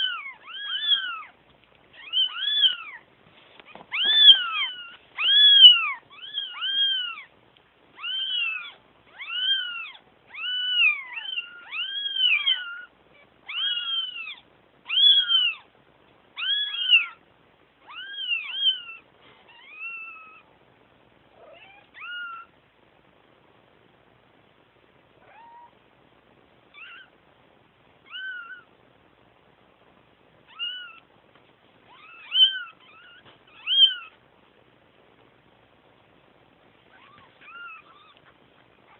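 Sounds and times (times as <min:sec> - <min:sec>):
kittens meowing: 0:00.0 - 0:01.4, 0:02.0 - 0:03.0, 0:03.7 - 0:07.3, 0:08.0 - 0:15.7, 0:16.4 - 0:17.2, 0:17.8 - 0:20.5, 0:21.4 - 0:22.5, 0:26.7 - 0:27.2, 0:28.0 - 0:28.7, 0:30.5 - 0:31.1, 0:31.9 - 0:34.2, 0:36.9 - 0:38.3.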